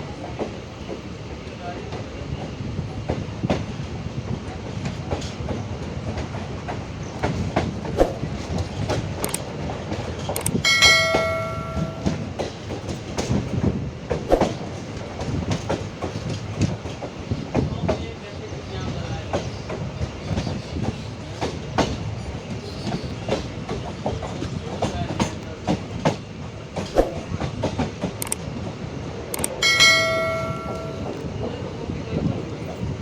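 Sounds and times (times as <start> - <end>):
train wheels clacking on rails: 0.0 - 33.0
metallic ringing tone: 10.6 - 12.3, 29.6 - 31.2.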